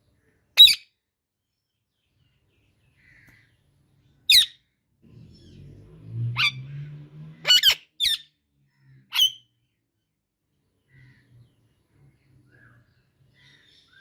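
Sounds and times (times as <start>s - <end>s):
parakeet squawking: 0.6s - 0.8s, 4.3s - 4.6s, 6.4s - 6.7s, 7.4s - 8.3s, 9.1s - 9.4s.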